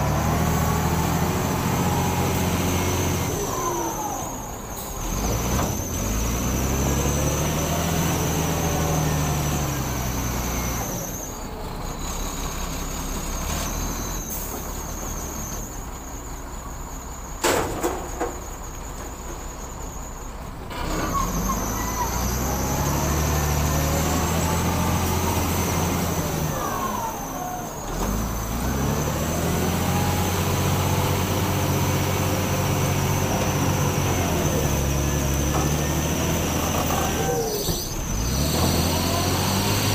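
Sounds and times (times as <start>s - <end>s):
heavy diesel engine revving: 0.0s - 15.6s, 20.6s - 39.9s.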